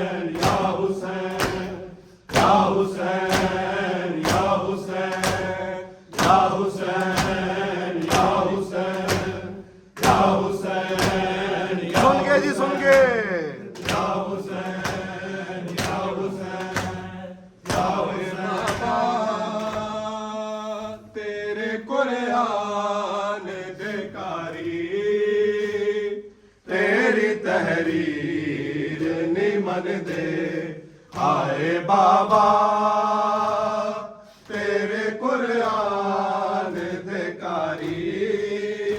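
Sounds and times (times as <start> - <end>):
voices chanting a lamentation: 0.0 - 38.9
hand slaps on the chest: 0.3 - 20.0, 25.5 - 26.0, 28.9 - 34.9, 35.6 - 35.9, 36.6 - 38.9.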